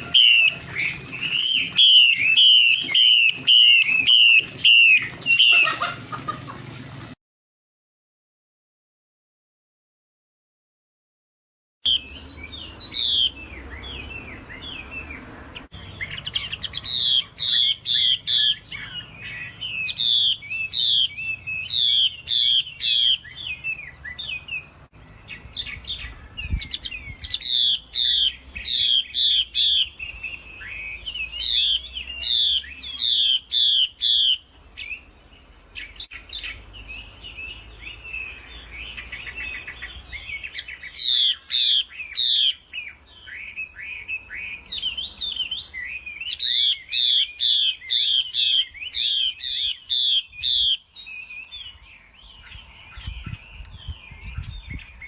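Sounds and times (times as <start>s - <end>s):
bird whistling phrases: 0.0s - 5.8s, 11.8s - 24.7s, 25.6s - 35.1s, 39.0s - 51.8s
soft bird twittering: 11.8s - 55.0s.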